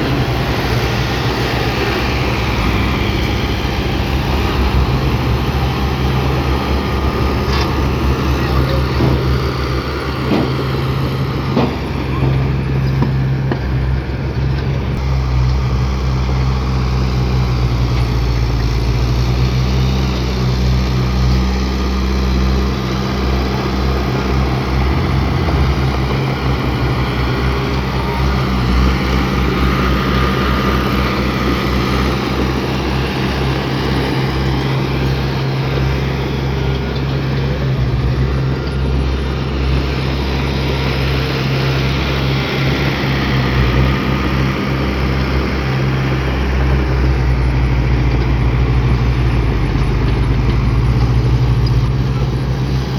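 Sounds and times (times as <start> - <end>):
heavy diesel engine droning: 0.0 - 52.9.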